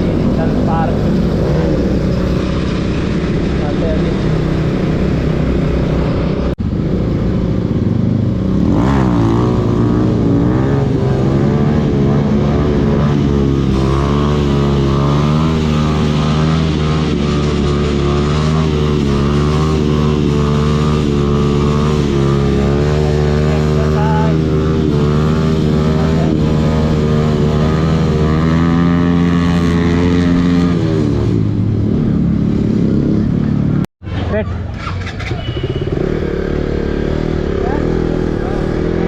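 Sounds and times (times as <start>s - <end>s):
motorcycle engine running: 34.8s - 39.0s.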